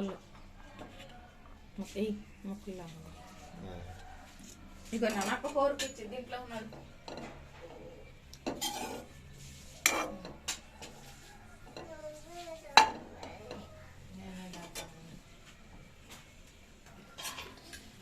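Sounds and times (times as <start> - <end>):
metal utensil stirring in a pan: 4.4 - 11.9, 17.1 - 18.0.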